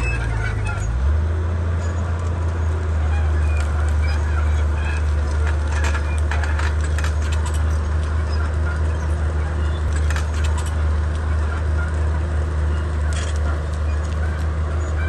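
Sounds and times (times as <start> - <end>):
bulldozer diesel engine droning: 0.0 - 15.0
short clicks and scrapes: 3.2 - 15.0.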